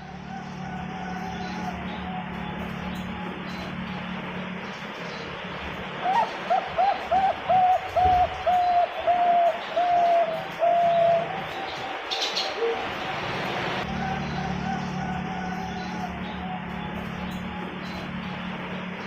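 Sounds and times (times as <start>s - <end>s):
dove cooing: 6.0s - 11.6s.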